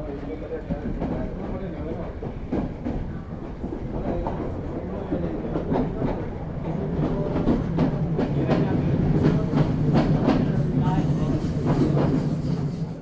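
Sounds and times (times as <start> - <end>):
train running rumble: 0.2 - 13.0
train wheels clacking over rail joints: 0.7 - 10.7.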